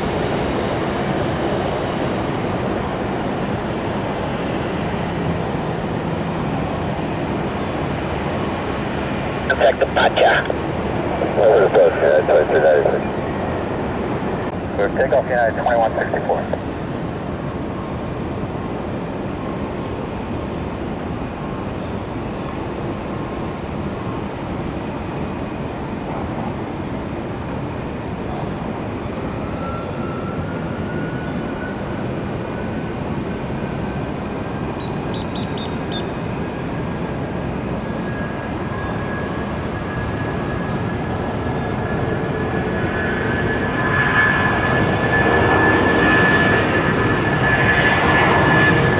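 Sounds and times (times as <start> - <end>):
jet engines roaring: 0.0 - 48.9
rising engine whine: 27.6 - 48.9.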